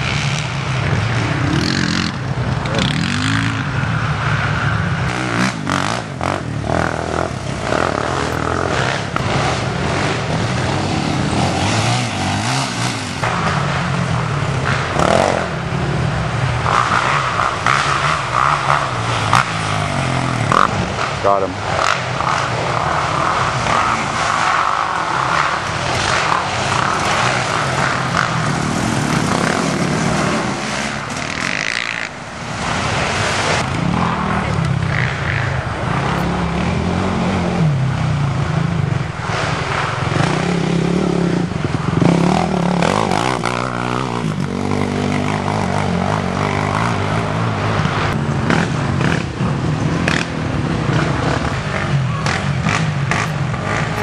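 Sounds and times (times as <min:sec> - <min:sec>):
quad engines revving: 0:00.0 - 0:54.0.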